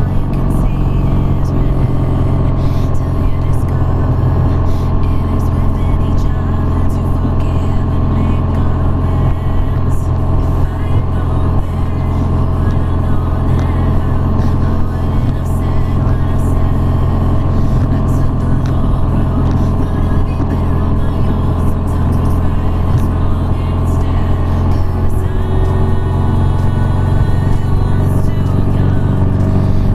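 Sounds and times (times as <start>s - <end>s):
motorcycle engine cruising: 0.0s - 29.9s.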